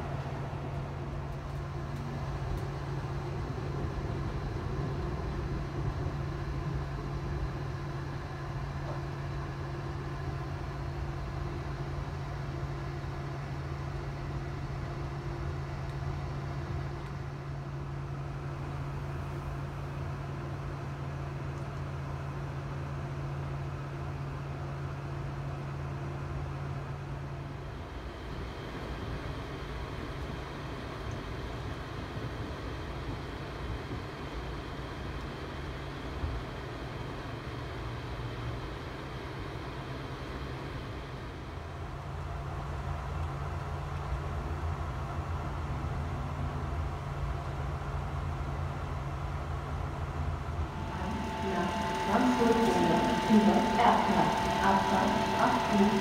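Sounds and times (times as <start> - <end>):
constant low hum: 0.0 - 56.0
train rolling along track: 47.1 - 56.0.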